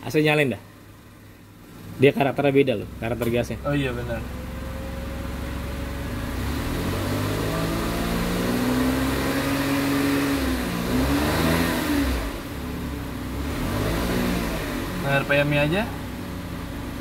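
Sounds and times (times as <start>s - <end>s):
air conditioning: 0.0s - 17.0s
car engine revving: 1.8s - 17.0s.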